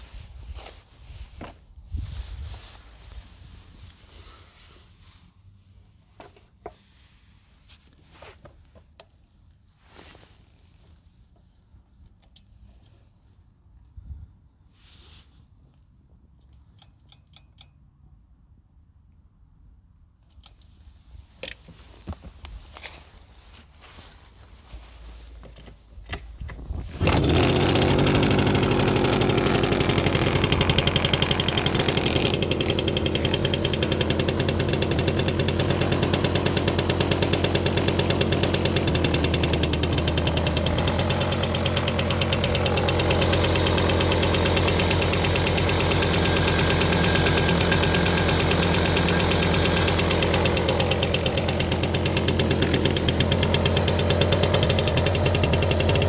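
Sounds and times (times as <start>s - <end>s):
moped two-stroke engine running: 26.9s - 56.0s.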